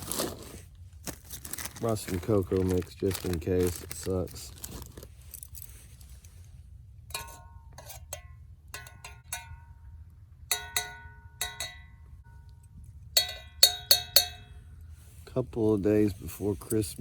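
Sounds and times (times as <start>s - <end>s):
spoon clinking in mug: 7.1s - 9.9s, 10.5s - 12.1s, 13.2s - 14.5s.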